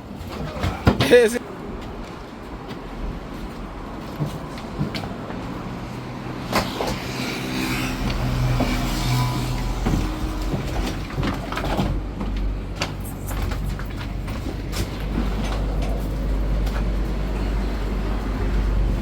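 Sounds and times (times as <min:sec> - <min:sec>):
vehicle body knocks and rattles: 0:09.7 - 0:17.0.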